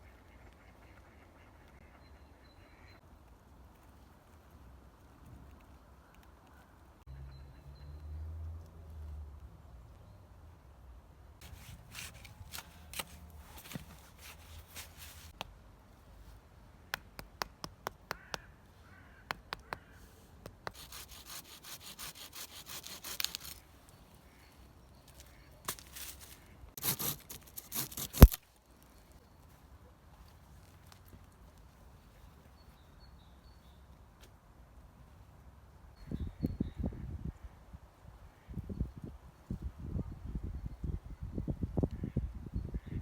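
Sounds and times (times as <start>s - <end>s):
rubbing or scraping strokes: 11.4s - 15.4s, 20.7s - 23.6s, 25.7s - 28.4s.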